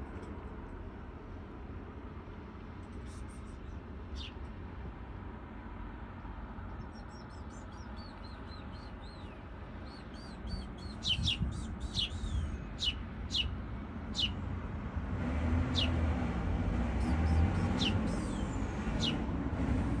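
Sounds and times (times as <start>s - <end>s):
small birds chirping: 3.0s - 4.6s, 6.6s - 14.4s, 15.6s - 16.0s, 16.9s - 19.3s.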